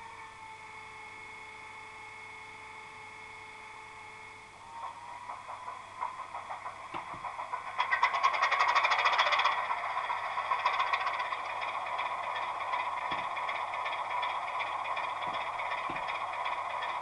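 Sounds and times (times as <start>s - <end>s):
diesel engine starting and idling: 4.8s - 17.0s.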